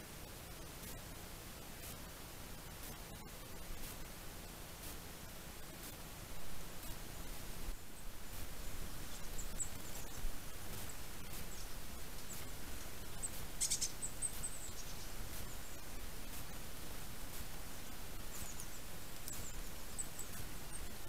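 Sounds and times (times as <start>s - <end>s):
steady background hiss: 0.0s - 21.0s
small birds calling: 6.7s - 21.0s.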